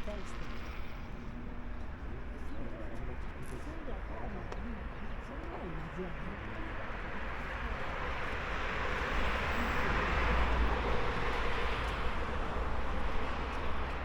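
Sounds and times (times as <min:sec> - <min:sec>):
tram passing by: 0:05.8 - 0:14.0.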